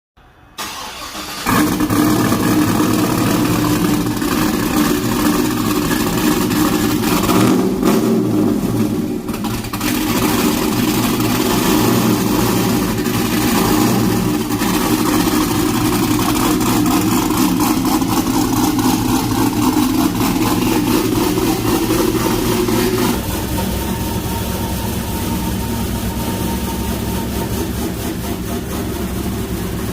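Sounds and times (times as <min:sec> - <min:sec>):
loud v-eight engine with lumpy idle: 0:01.5 - 0:29.9.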